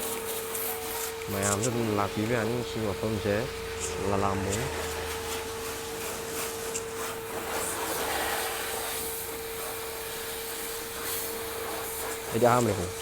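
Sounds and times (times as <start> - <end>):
steady machine whine: 0.0 - 6.0.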